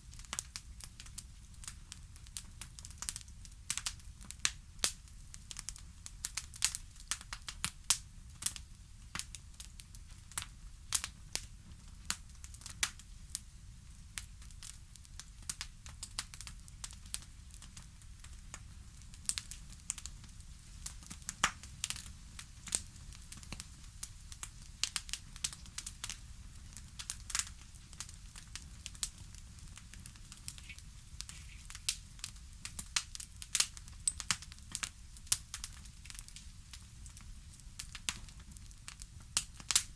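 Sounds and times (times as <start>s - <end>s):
low rumble of fire: 0.0s - 39.9s
burning wood popping and snapping: 14.2s - 39.9s.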